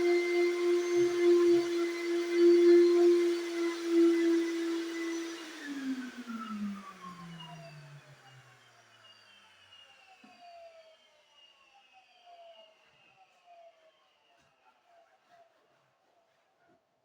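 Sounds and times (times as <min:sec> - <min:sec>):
vacuum cleaner motor spinning down: 0:00.0 - 0:11.0.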